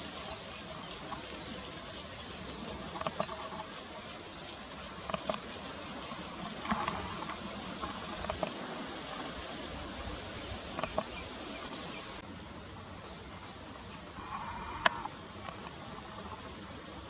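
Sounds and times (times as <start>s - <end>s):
outdoor background noise: 0.0s - 17.0s
faint short clicks: 14.3s - 15.8s.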